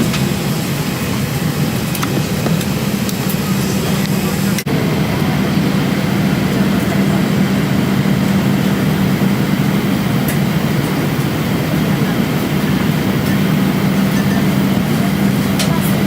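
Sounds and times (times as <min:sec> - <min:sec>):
aircraft cabin air rush: 0:00.0 - 0:16.0.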